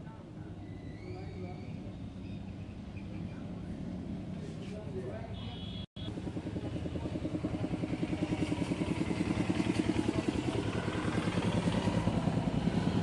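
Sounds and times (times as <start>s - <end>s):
diesel engine idling: 5.7s - 13.0s.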